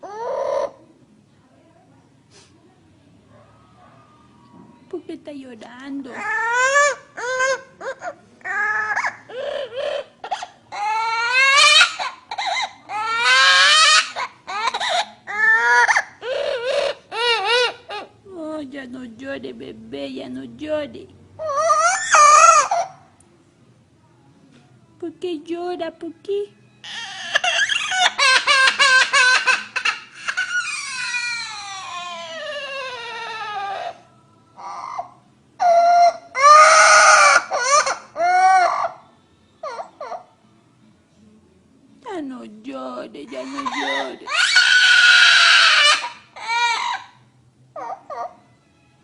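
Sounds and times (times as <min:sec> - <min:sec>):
parrot wailing: 0:00.0 - 0:00.9, 0:06.1 - 0:18.2, 0:21.4 - 0:23.2, 0:26.8 - 0:40.5, 0:43.3 - 0:48.6.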